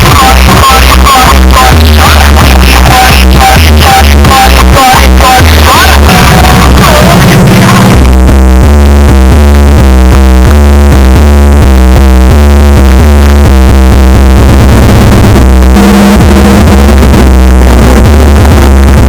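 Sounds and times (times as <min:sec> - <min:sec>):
electronic dance music: 0:00.0 - 0:19.0
heavy pounding bass line: 0:00.0 - 0:19.0.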